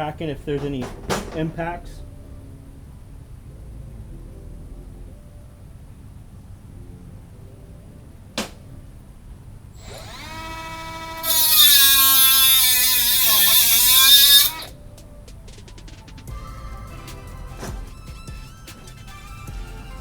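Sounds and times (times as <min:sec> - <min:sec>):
electric grinder grinding steel: 0:09.8 - 0:14.7.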